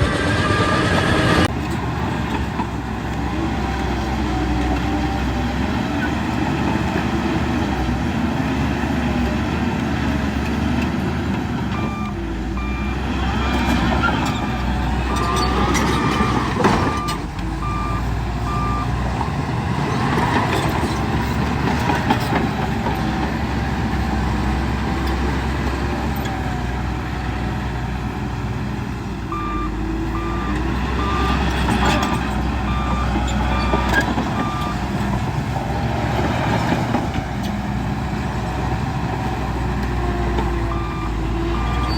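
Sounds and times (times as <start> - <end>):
heavy machinery engine running: 0.0 - 41.9
backup alarm beeping: 15.1 - 19.0, 29.3 - 32.0.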